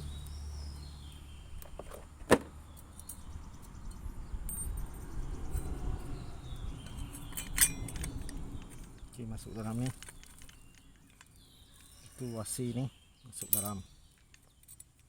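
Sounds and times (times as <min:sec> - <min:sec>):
metal parts clicking: 0:06.8 - 0:12.0, 0:13.4 - 0:15.0.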